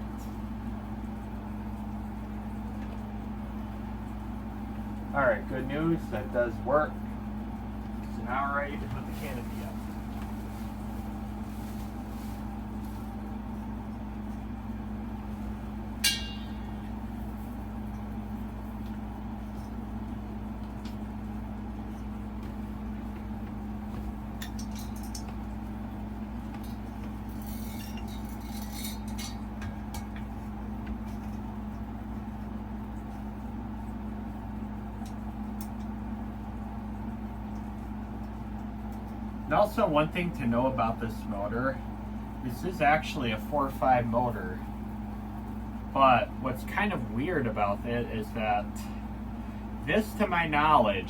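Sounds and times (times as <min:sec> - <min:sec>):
steady hum: 0:00.0 - 0:51.0
metal fan parts clinking: 0:16.0 - 0:17.0, 0:23.9 - 0:31.5.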